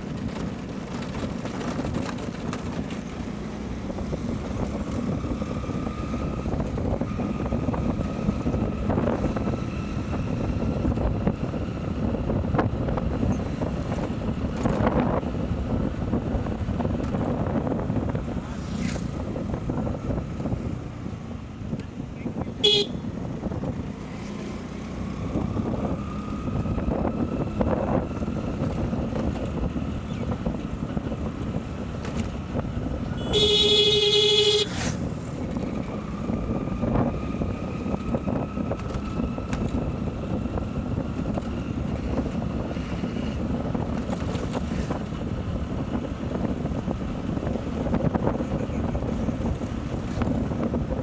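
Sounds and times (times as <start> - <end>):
motorcycle engine: 0.0 - 51.0
wind and road noise: 0.0 - 51.0
vehicle horn honking: 22.6 - 23.1, 33.1 - 34.9.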